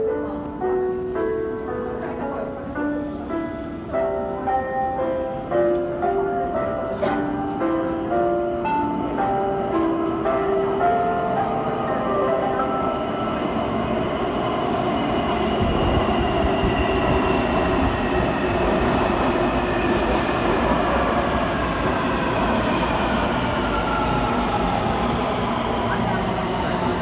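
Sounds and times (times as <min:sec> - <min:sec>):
train wheels rumbling on rail: 0:12.7 - 0:27.0.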